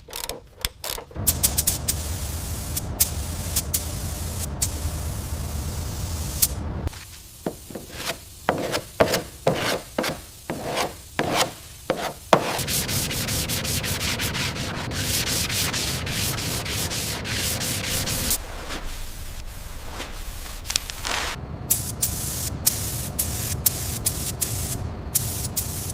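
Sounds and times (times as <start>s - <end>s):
sanding strokes: 7.4s - 21.4s.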